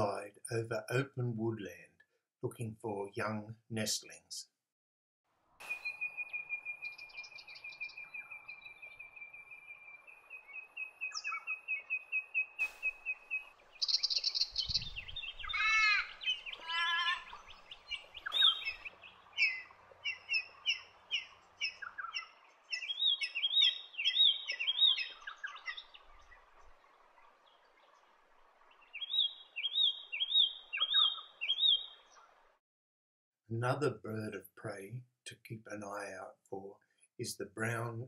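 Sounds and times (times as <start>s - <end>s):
rising and falling bird whistles: 5.6s - 8.4s, 18.2s - 18.8s
birds chirping: 5.6s - 32.4s.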